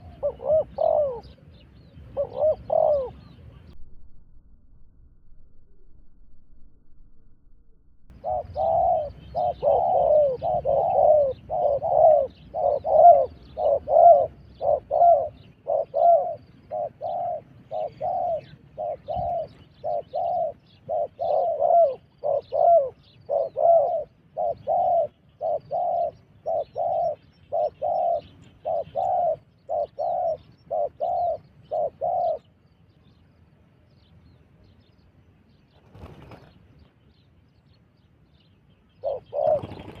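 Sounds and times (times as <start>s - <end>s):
dove cooing: 0.0s - 3.8s, 8.1s - 32.5s, 39.0s - 40.0s.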